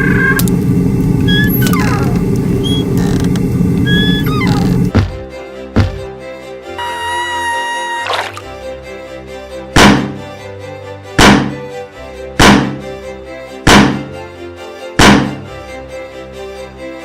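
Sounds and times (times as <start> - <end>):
heavy thunk sound effect: 4.9 - 6.1, 9.8 - 10.2, 11.2 - 11.6, 12.4 - 12.8, 13.7 - 14.1, 15.0 - 15.4
background music: 4.9 - 17.0.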